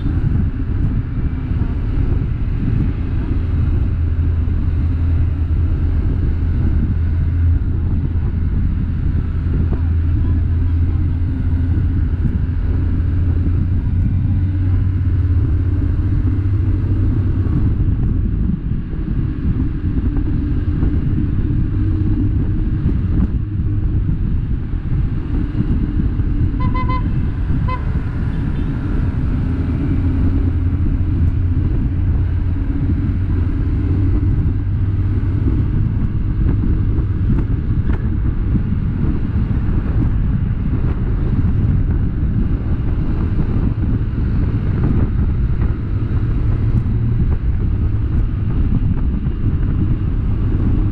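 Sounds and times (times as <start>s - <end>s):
vehicle engine and road noise: 0.0s - 50.9s
car horn beeping: 26.6s - 28.7s.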